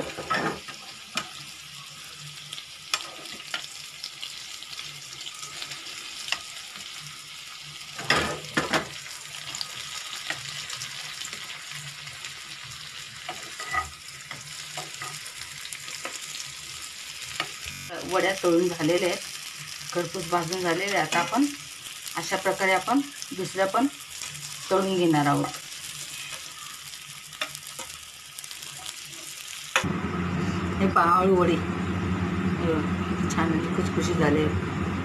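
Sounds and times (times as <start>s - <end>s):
fritters sizzling in oil: 0.0s - 35.0s
spatula scraping and knocking pan: 13.2s - 15.3s.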